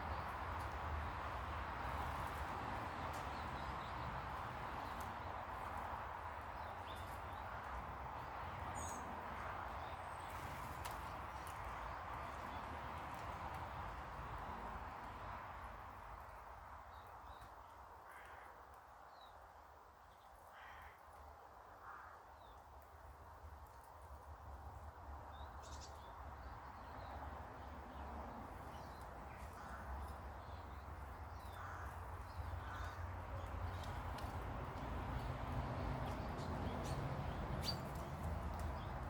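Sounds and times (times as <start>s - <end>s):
birds making rough calls: 31.5s - 33.1s.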